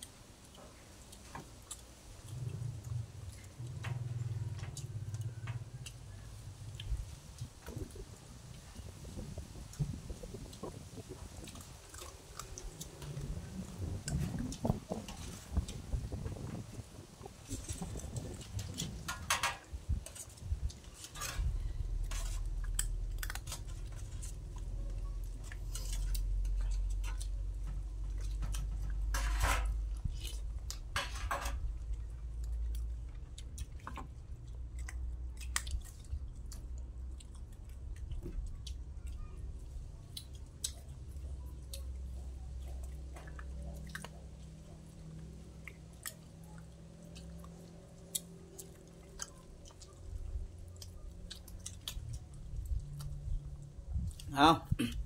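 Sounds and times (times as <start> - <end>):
close-up chewing: 0.0 - 55.0
faint low hum: 0.0 - 55.0
spoons scraping metal tray: 29.1 - 29.8.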